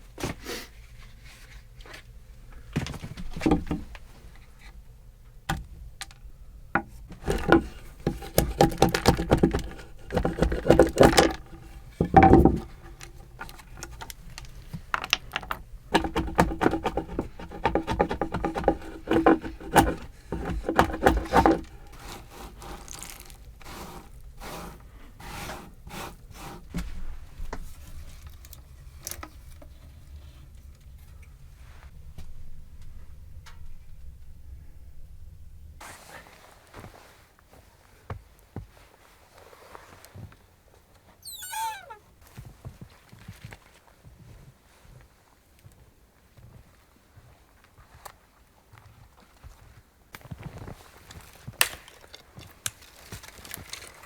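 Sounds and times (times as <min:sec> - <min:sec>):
knocks on wood: 0:06.8 - 0:13.0, 0:16.0 - 0:21.7
hand tool scraping wood: 0:06.8 - 0:26.9.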